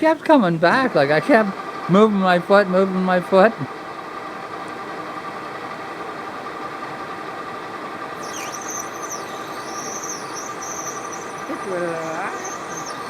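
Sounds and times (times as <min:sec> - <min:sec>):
lathe running: 0:00.0 - 0:13.0
tool squealing on plastic: 0:08.2 - 0:13.0.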